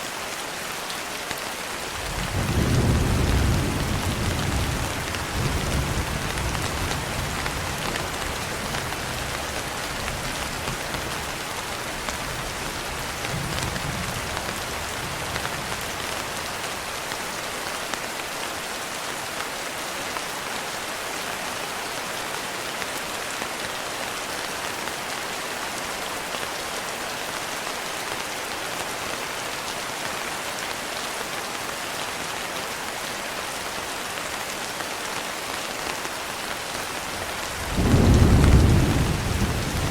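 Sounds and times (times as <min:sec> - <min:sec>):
steady rain falling: 0:00.0 - 0:39.9
thunder rumble: 0:37.7 - 0:39.9.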